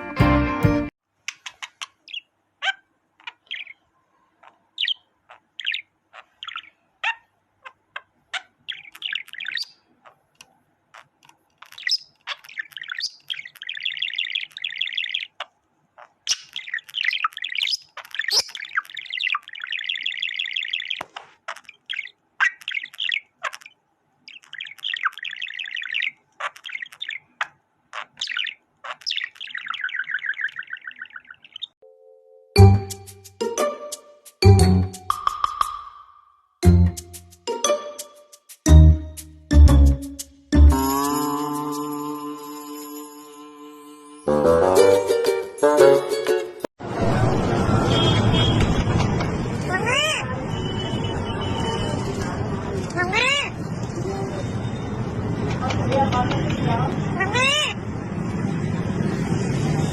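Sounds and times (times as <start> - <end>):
small bird chirping and trilling: 1.3 - 10.2, 11.0 - 31.8.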